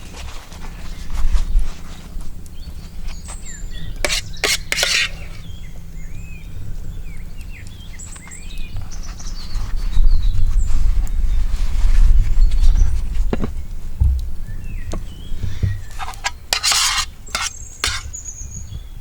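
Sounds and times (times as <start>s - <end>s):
small birds chirping: 2.5s - 11.4s, 14.4s - 19.0s.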